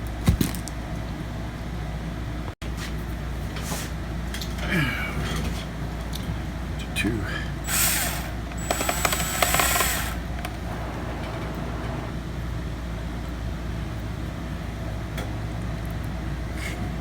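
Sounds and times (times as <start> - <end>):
steady low hum: 7.3 - 12.2
electric screwdriver whirring: 7.7 - 12.1.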